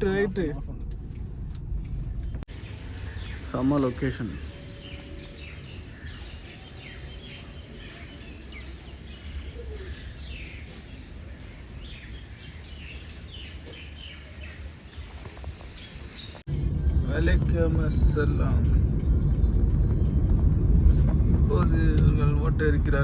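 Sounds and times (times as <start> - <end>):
steady low rumble: 0.0 - 14.1, 16.0 - 23.0
small birds chirping: 1.8 - 16.5.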